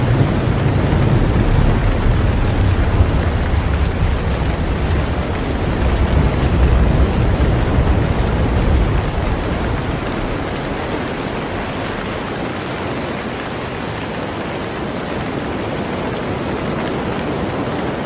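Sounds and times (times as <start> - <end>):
low rumble: 0.0 - 12.3
heavy rain on a boat: 0.0 - 18.0.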